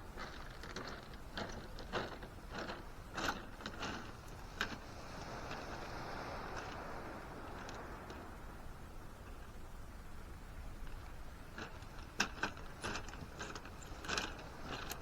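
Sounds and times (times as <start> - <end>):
steady hiss: 4.0 - 15.0
gear clicking and clattering: 11.6 - 15.0.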